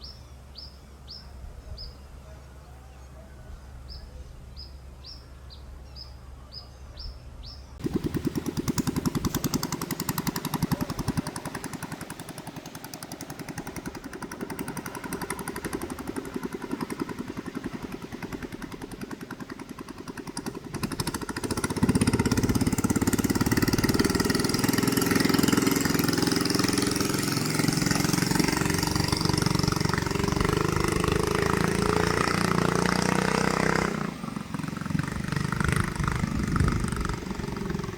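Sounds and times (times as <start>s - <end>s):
small engine running: 7.8s - 37.9s.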